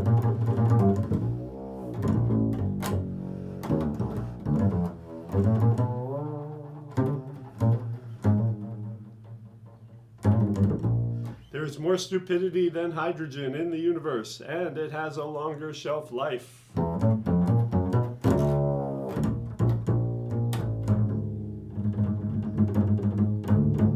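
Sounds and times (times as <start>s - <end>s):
low-pitched string instrument: 0.0s - 11.5s, 16.8s - 23.9s.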